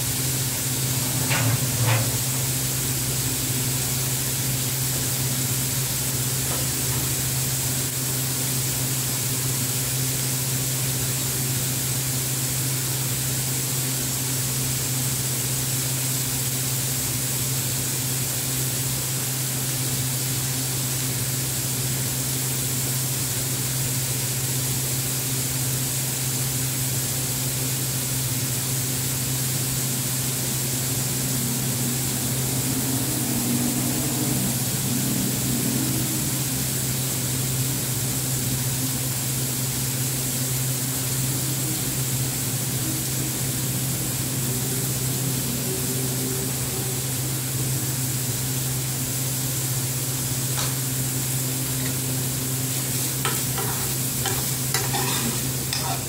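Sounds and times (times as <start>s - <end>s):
onions sizzling in oil: 0.0s - 56.0s
spoon scraping a frying pan: 52.7s - 56.0s.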